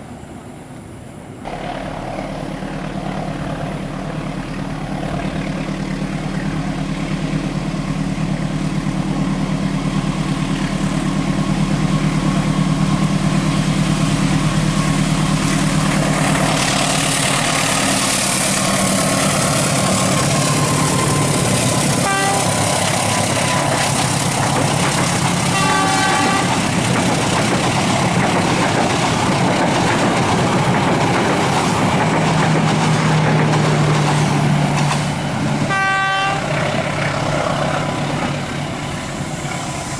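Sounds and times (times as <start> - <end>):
diesel locomotive engine droning: 0.0 - 39.9
train passing rumble: 0.0 - 39.9
short horn toots: 22.0 - 22.7, 25.5 - 26.5, 35.7 - 36.5.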